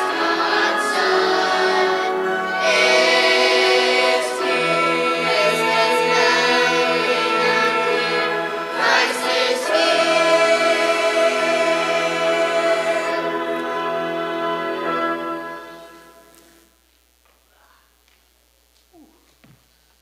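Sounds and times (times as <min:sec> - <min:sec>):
choir singing: 0:00.0 - 0:16.3.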